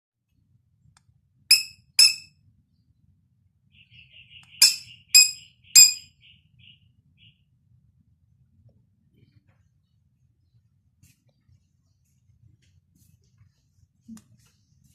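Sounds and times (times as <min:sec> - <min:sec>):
bird pecking mirror toy clinks: 0:01.5 - 0:02.3, 0:04.6 - 0:06.0
soft high bird chirping: 0:01.5 - 0:03.0, 0:03.6 - 0:07.6.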